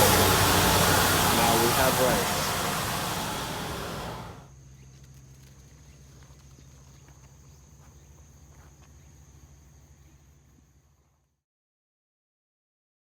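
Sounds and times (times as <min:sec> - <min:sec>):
low hum: 0:00.0 - 0:04.5.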